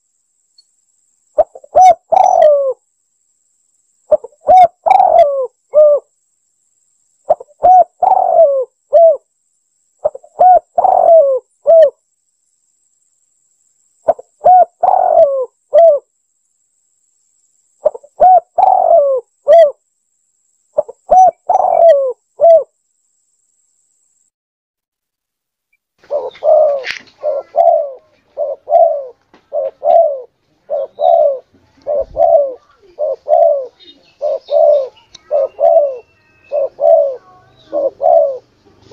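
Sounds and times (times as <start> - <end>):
dove cooing: 1.4 - 2.8, 4.1 - 6.1, 7.3 - 9.2, 10.0 - 12.0, 14.1 - 16.1, 17.8 - 19.8, 20.8 - 22.7, 26.0 - 38.9.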